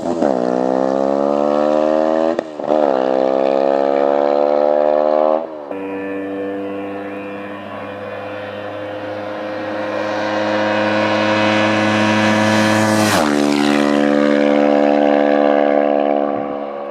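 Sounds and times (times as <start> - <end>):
motorcycle passing at speed: 0.0 - 16.9.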